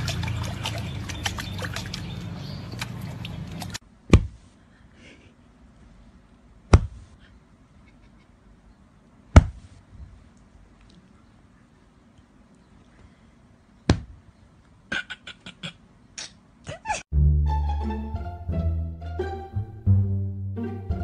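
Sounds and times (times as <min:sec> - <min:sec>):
water splashing and trickling: 0:00.0 - 0:03.8
sharp thumps: 0:04.1 - 0:04.5, 0:06.7 - 0:07.2, 0:09.3 - 0:09.8, 0:13.9 - 0:14.2.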